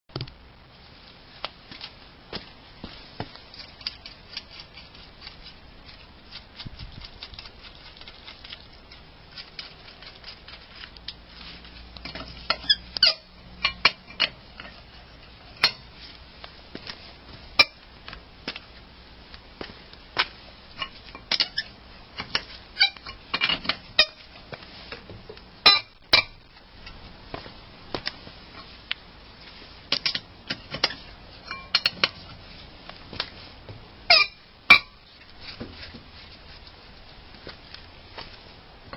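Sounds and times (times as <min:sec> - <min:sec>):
metal tools clinking and knocking: 0:30.8 - 0:32.2.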